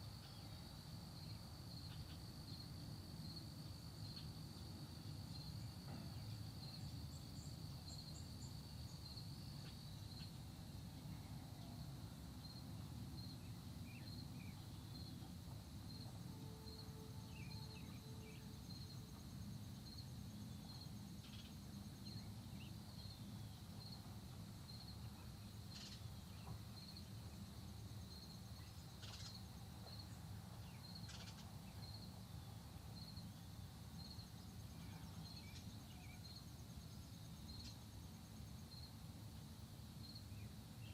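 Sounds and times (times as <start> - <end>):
high insect trill: 0.0 - 40.9
insects chirping: 0.0 - 40.9.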